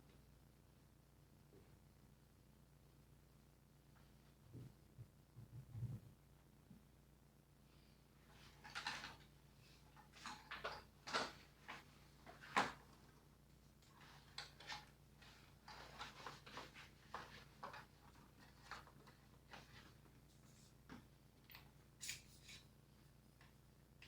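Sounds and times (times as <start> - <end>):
faint scraping and rustling: 3.9 - 6.3, 7.7 - 23.6.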